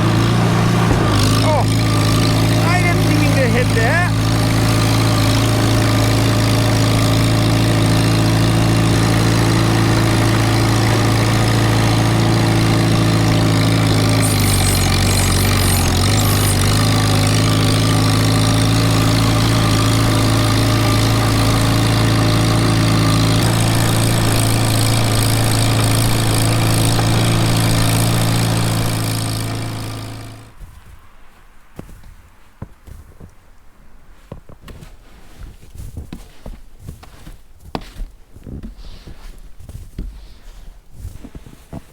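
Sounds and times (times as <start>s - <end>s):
small tractor engine running: 0.0s - 30.8s.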